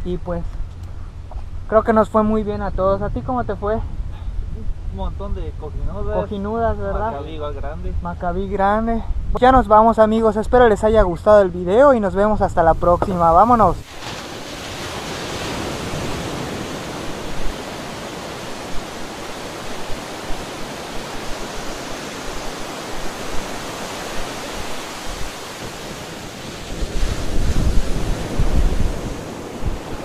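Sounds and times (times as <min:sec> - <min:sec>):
wind rumbling on microphone: 0:00.0 - 0:30.0
small waves washing on sand: 0:13.0 - 0:30.0.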